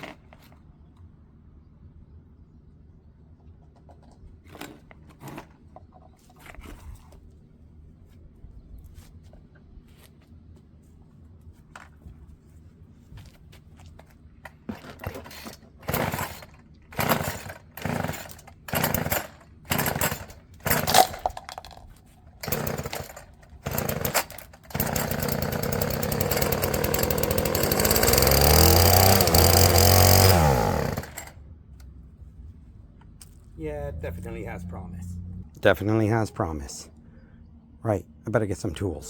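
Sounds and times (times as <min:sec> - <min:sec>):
recoil starter cord tugs: 0:14.5 - 0:32.0
string trimmer engine running: 0:15.0 - 0:21.8, 0:22.4 - 0:31.9.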